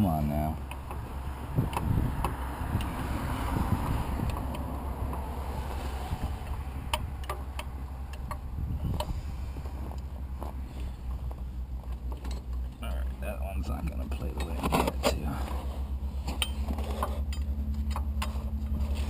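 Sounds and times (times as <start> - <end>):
wind rumble on microphone: 1.0 - 10.9.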